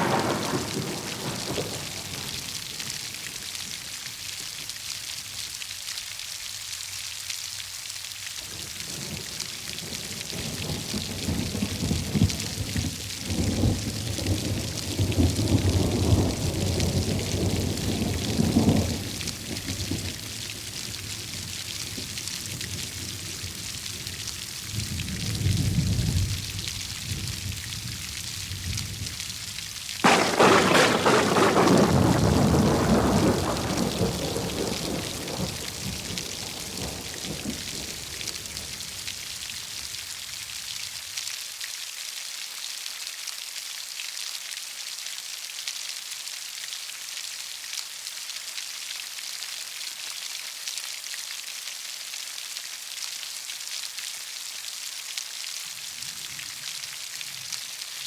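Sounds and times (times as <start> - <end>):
thunderclap: 0.0 - 3.4, 8.9 - 20.7, 30.0 - 39.0
heavy rain falling: 0.0 - 41.8, 46.0 - 58.0.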